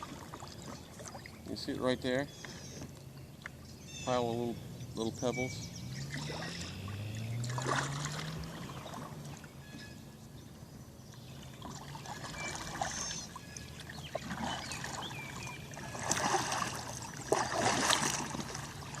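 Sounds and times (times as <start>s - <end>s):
paddle pulling through water: 0.0s - 4.2s, 4.9s - 19.0s
water splashing and dripping: 6.0s - 9.6s, 11.6s - 19.0s.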